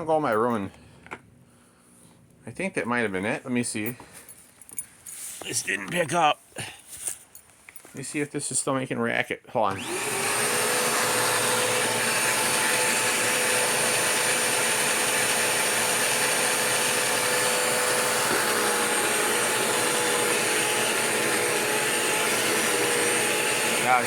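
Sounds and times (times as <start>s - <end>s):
vacuum cleaner running: 9.7s - 24.0s.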